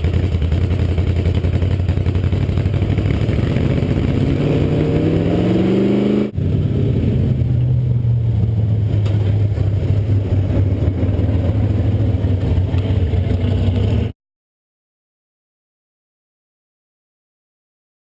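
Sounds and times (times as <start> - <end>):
engine idling at low revs: 0.0 - 4.2, 6.4 - 14.1
supercharged engine revving: 0.0 - 14.1.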